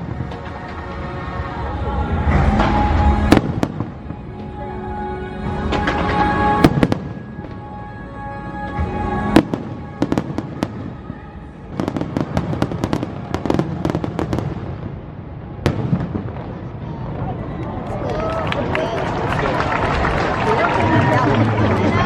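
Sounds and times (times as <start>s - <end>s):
fireworks bursting with bangs: 0.0s - 4.6s, 5.5s - 7.8s, 8.7s - 17.5s
orchestral music from loudspeakers: 0.0s - 14.4s.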